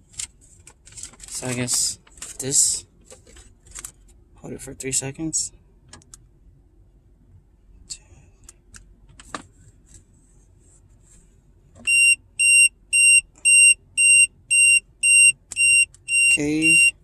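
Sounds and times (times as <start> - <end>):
high electronic beeps: 11.9 - 17.0.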